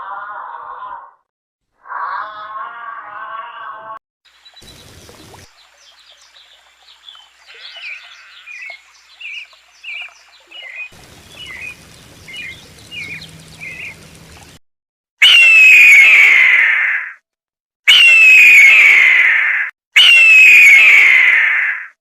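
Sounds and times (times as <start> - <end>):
bird chirping: 4.4 - 14.5
loud shrill cry: 15.2 - 17.2, 17.9 - 21.9.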